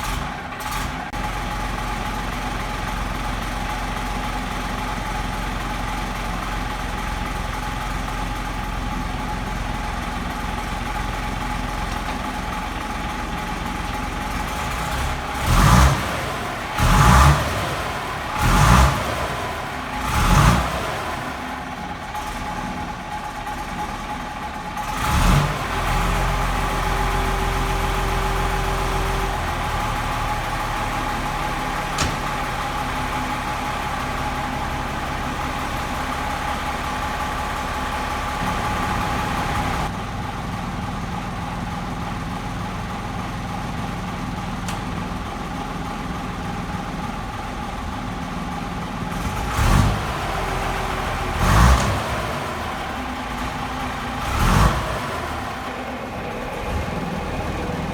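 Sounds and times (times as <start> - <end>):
diesel lorry engine idling: 0.0 - 57.9
engine throttle blips: 9.1 - 39.9, 44.5 - 57.9.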